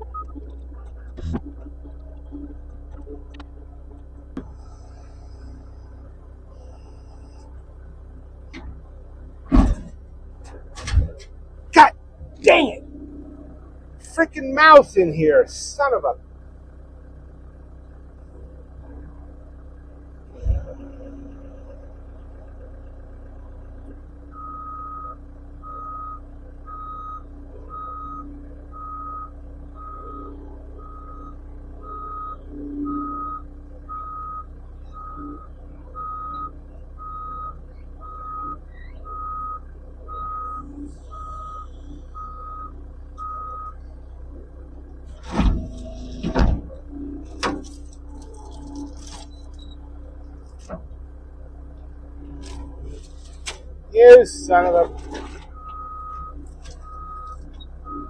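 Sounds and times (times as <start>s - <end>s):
backup alarm beeping: 0.0s - 8.8s, 24.1s - 43.8s, 53.9s - 58.0s
skid steer engine running: 0.0s - 58.0s.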